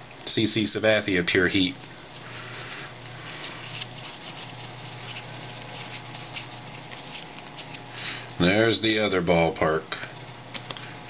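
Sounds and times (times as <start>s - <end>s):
low steady hum: 0.0s - 11.0s
cards rustling and clicking: 1.5s - 8.7s, 10.0s - 11.0s.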